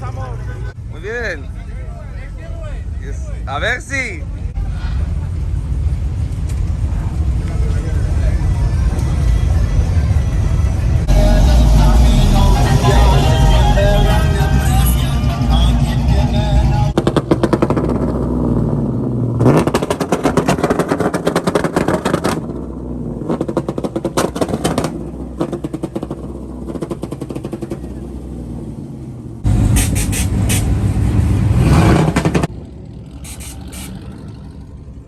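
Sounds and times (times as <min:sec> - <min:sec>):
vehicle engine revving: 0:11.0 - 0:35.0
music: 0:11.1 - 0:16.9
exhaust popping and crackling: 0:11.1 - 0:28.8, 0:31.8 - 0:32.5.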